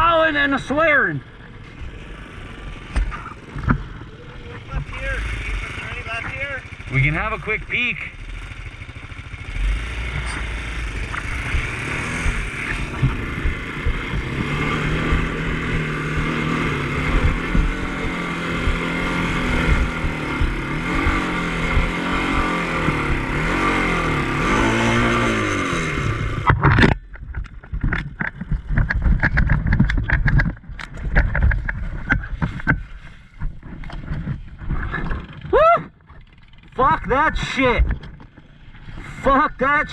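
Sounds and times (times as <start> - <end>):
off-road vehicle engine lugging: 0.0 - 39.9
knocks and rattles: 11.0 - 23.2, 26.4 - 37.0.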